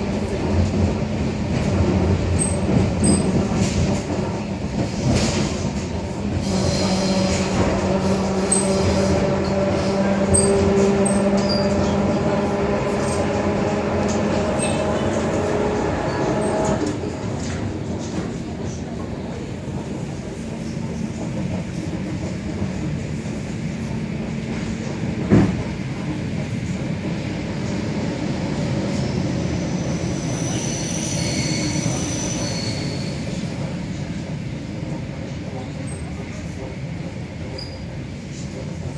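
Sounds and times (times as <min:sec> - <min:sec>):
train rolling noise: 0:00.0 - 0:38.9.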